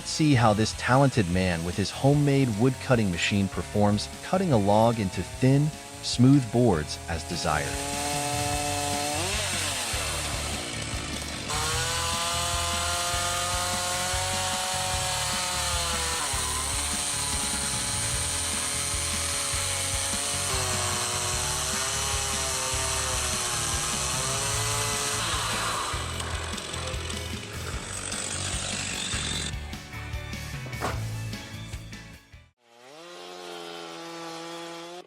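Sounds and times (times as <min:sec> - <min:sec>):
saw engine cutting wood: 0:00.0 - 0:29.8, 0:32.6 - 0:35.0
background music with steady beat: 0:23.4 - 0:32.5.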